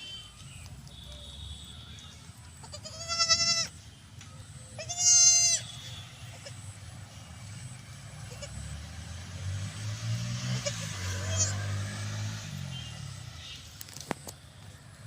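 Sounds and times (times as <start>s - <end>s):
goat bleating: 2.0s - 3.8s, 4.8s - 6.8s, 8.1s - 8.7s, 10.6s - 11.6s.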